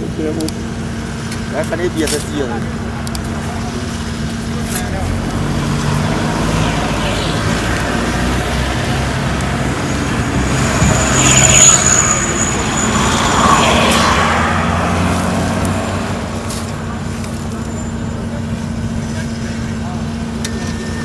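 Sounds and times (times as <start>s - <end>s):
vehicle engines running: 0.0s - 21.0s
thin high squeal: 9.8s - 15.3s, 20.5s - 21.0s.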